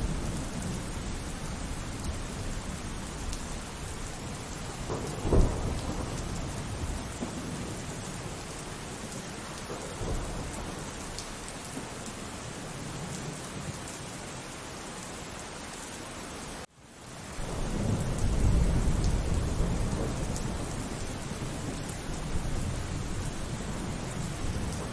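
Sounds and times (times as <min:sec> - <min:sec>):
thunder rumbling: 0:00.0 - 0:11.5, 0:17.4 - 0:24.9
steady rainfall: 0:00.0 - 0:24.9.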